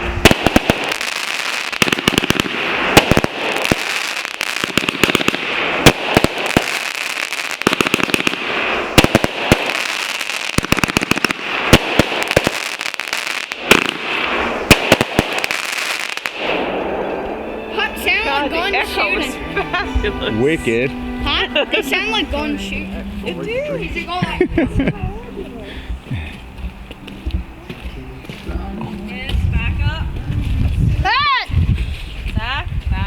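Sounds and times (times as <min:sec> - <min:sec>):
fireworks bangs: 0:00.0 - 0:17.4
fireworks crackling: 0:00.0 - 0:25.2.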